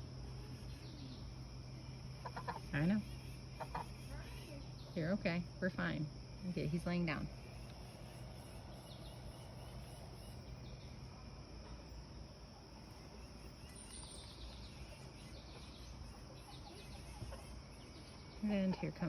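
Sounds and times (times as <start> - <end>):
faint bird calls: 0.0 - 5.9, 12.6 - 19.0.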